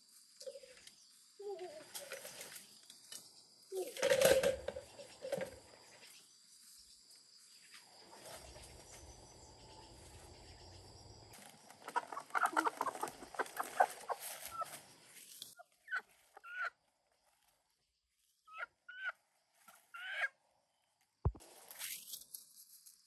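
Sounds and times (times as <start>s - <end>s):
chickens clucking: 11.4s - 14.9s.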